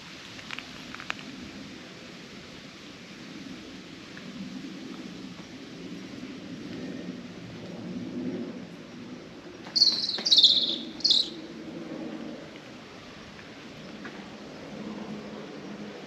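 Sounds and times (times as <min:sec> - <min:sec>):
high-pitched bird calls: 0:09.7 - 0:11.4.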